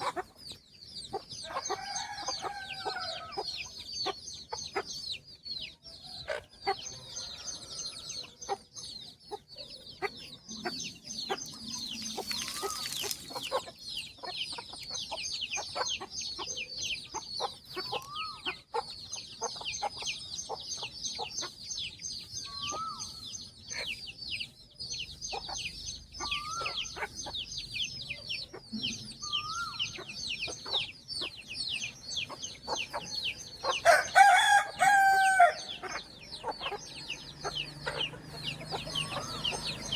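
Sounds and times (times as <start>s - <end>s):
chicks peeping: 0.0s - 39.9s
hen calling: 10.5s - 13.7s, 29.2s - 30.9s
loud chicken call: 33.7s - 36.0s.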